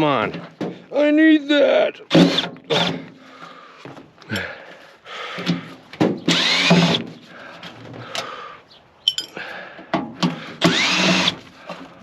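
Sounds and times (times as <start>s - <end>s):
power drill whining: 6.3s - 7.1s, 10.5s - 11.9s.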